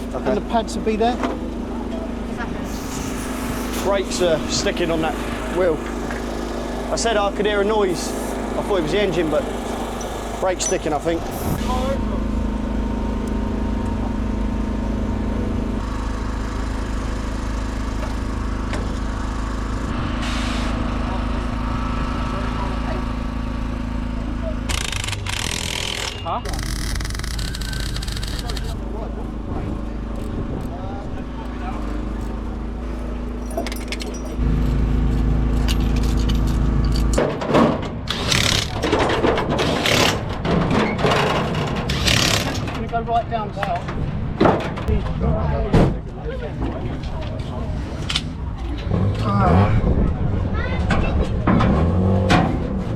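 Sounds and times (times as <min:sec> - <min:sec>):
engine idling: 0:00.0 - 0:20.0, 0:20.9 - 0:37.2.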